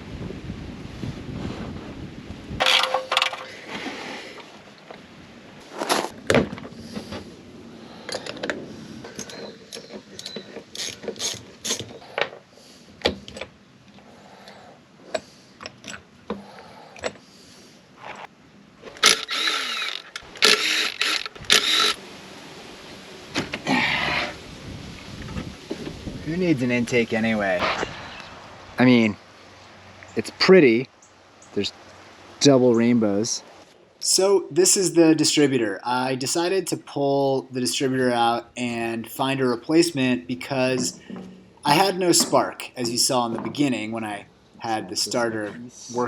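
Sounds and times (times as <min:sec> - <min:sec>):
metal hand tools clanking: 0:02.6 - 0:03.6, 0:09.1 - 0:12.0
metal parts rattling: 0:02.6 - 0:03.6, 0:08.0 - 0:12.4
ratchet wrench clicking: 0:19.0 - 0:22.0.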